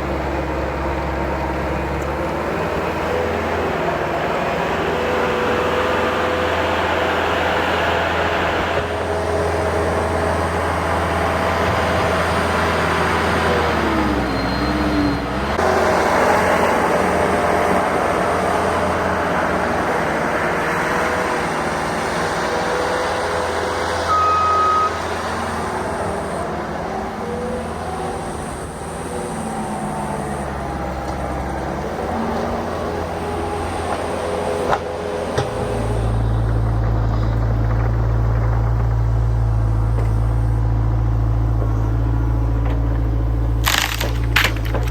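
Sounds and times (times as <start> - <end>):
diesel engine of heavy machinery: 0.0 - 44.9
short beep: 24.1 - 25.0.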